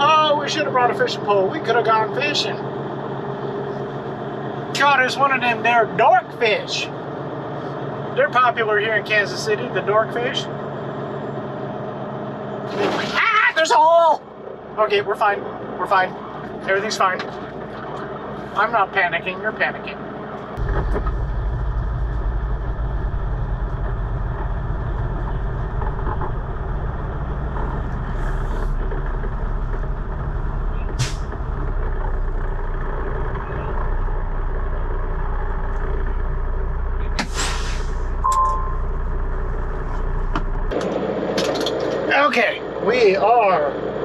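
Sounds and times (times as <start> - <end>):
truck diesel engine and road noise: 0.0 - 44.0
air hiss: 37.2 - 38.1
brief beep: 38.2 - 39.0.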